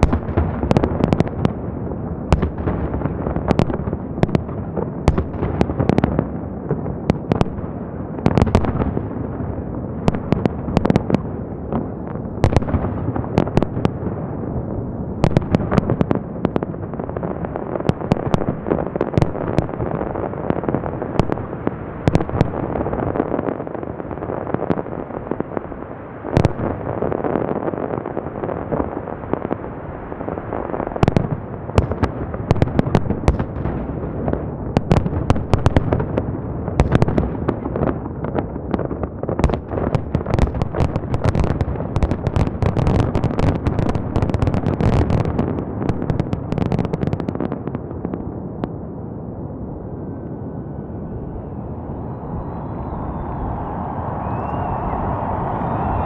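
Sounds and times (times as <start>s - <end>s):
fireworks bangs: 49.6s - 56.0s
rumbling echo: 49.7s - 56.0s
fireworks crackling: 49.8s - 56.0s.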